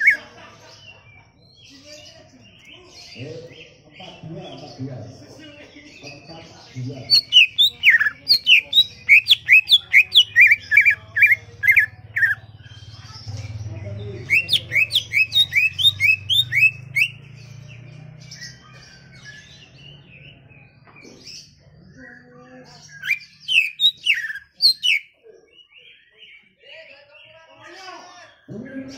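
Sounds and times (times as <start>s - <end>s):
bird singing whistled notes: 7.1s - 12.8s, 14.2s - 17.4s, 22.9s - 25.1s.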